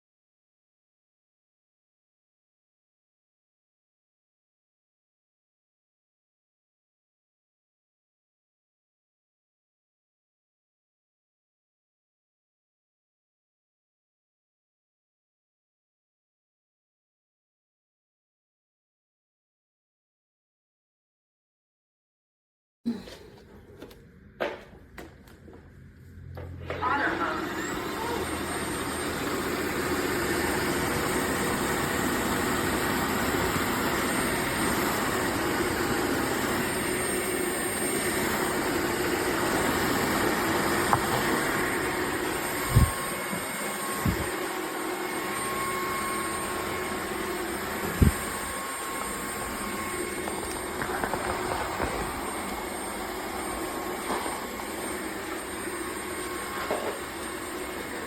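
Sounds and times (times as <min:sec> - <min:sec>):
vacuum mop motor hum and whine: 0:22.9 - 0:58.0.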